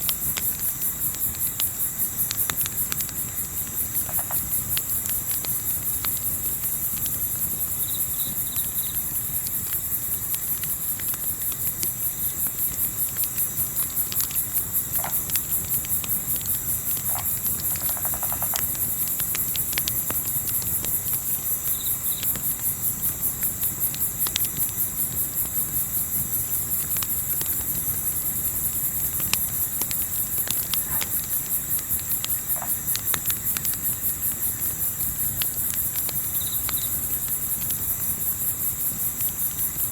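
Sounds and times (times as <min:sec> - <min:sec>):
campfire crackling: 0:00.0 - 0:39.9
crickets chirping: 0:00.0 - 0:39.9.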